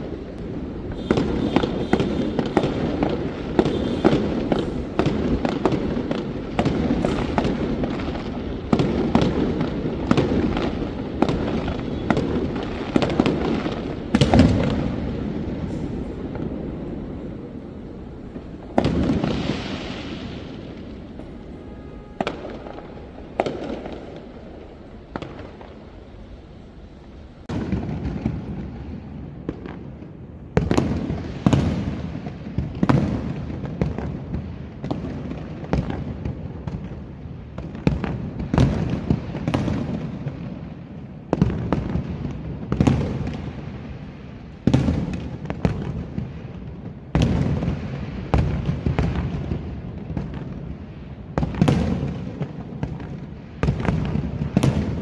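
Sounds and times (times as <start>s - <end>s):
fireworks banging: 0.0s - 40.6s, 41.3s - 55.0s
fireworks hissing burst: 14.0s - 21.7s.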